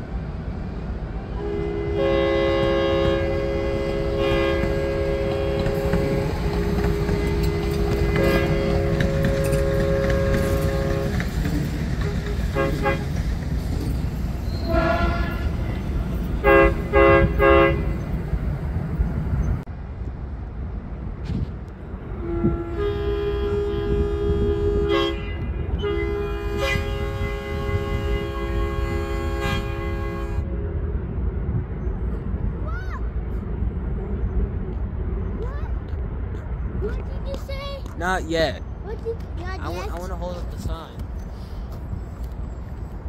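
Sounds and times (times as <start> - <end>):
low rumble of passing train: 0.0 - 43.0
train horn blasts: 1.3 - 13.2, 14.5 - 18.1, 22.0 - 30.9.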